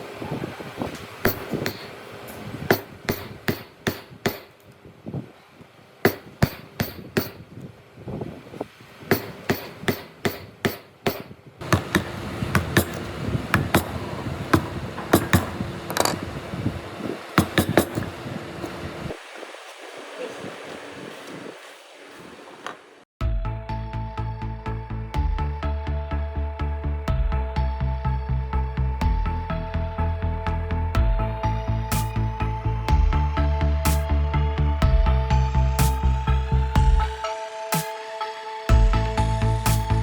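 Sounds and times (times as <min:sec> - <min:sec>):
steady background noise: 0:00.0 - 0:23.1
hammer blows on wood: 0:01.1 - 0:04.6, 0:06.1 - 0:07.5, 0:09.1 - 0:19.0.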